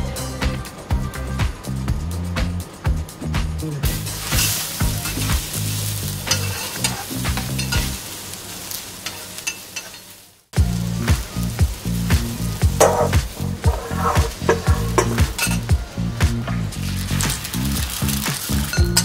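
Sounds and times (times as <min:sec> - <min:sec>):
food sizzling on a griddle: 0:03.8 - 0:19.0.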